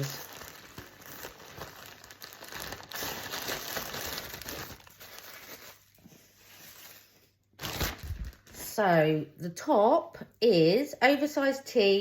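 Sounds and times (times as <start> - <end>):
plastic bags crinkling: 0.0 - 8.8.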